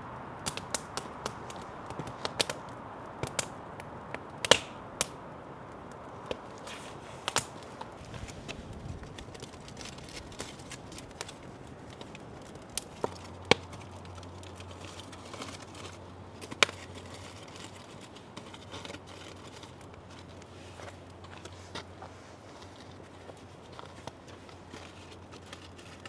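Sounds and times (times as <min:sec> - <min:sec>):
wood fire crackling: 0:00.0 - 0:26.0
sharp fire pops: 0:00.4 - 0:13.8.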